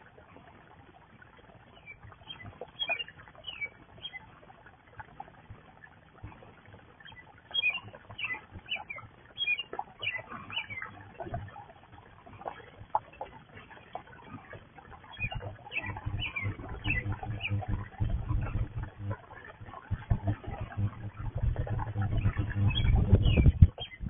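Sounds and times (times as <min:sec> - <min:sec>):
songbirds chirping: 0:01.6 - 0:04.7, 0:07.0 - 0:11.9, 0:14.1 - 0:24.0.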